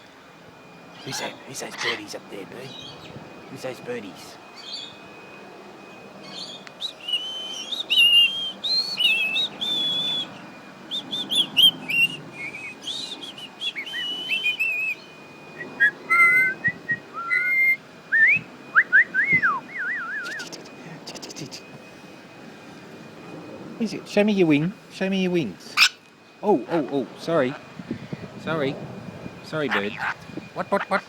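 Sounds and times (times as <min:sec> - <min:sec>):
lorikeet squeaky whistles and chirps: 0:06.2 - 0:17.8, 0:29.7 - 0:31.0.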